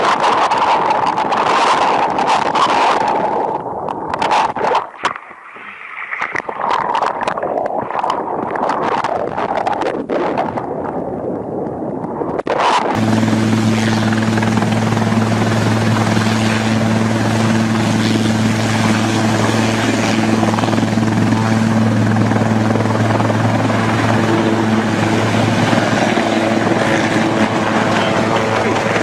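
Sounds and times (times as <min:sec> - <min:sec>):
helicopter running: 0:12.6 - 0:29.0.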